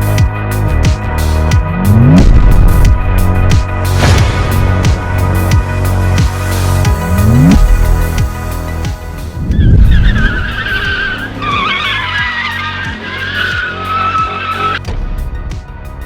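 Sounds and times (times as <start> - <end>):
electronic music with steady beat: 0.0 - 16.0
engine surge: 1.7 - 14.8
car tyres squealing: 9.4 - 14.8.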